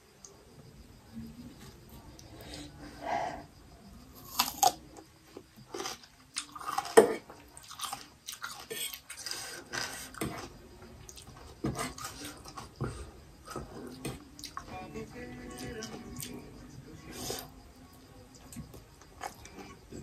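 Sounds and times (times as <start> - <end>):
crunching and chewing cucumber: 4.2 - 4.8, 5.7 - 12.8.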